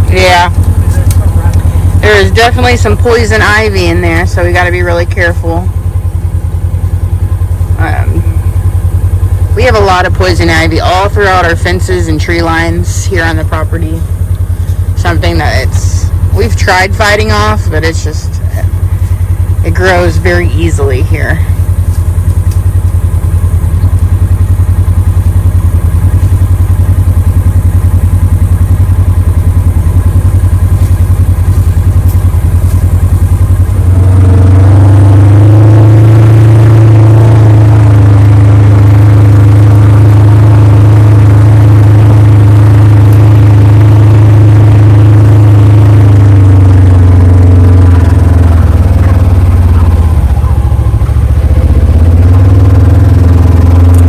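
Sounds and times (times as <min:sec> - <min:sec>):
vehicle engine revving: 0:00.0 - 0:54.0.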